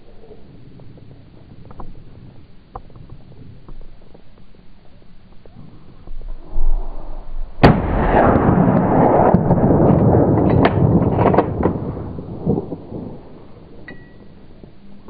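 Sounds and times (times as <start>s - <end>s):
loud rumbling noise: 6.3s - 15.0s
loud gunshot: 7.6s - 12.8s.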